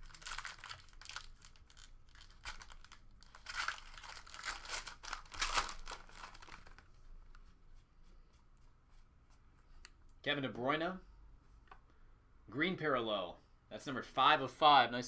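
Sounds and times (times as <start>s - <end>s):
foil wrappers crinkling: 0.0s - 6.9s.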